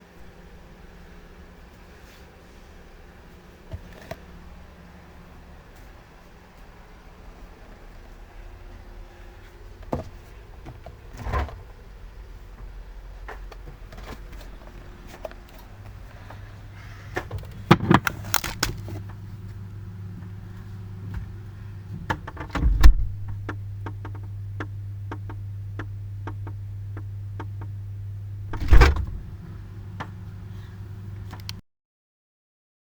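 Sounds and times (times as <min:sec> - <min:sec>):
low hum: 0:06.6 - 0:31.2
knocks and clicks at refrigerator: 0:17.2 - 0:18.8, 0:21.9 - 0:27.7, 0:28.5 - 0:29.3
heavy thuds: 0:22.6 - 0:23.4, 0:28.4 - 0:29.6.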